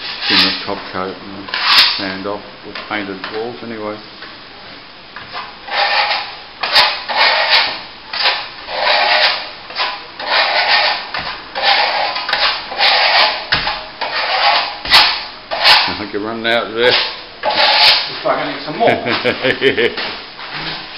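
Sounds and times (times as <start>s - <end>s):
trowel scraping plaster: 0.0s - 0.7s, 1.5s - 2.0s, 5.4s - 16.0s, 16.8s - 18.1s.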